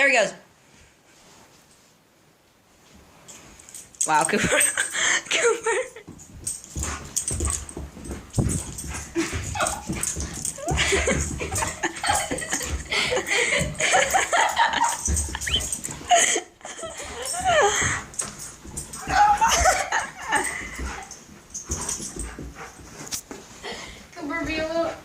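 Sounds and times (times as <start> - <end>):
thumps and scuffling: 6.0 - 23.6
dog whining and yipping: 14.8 - 16.3.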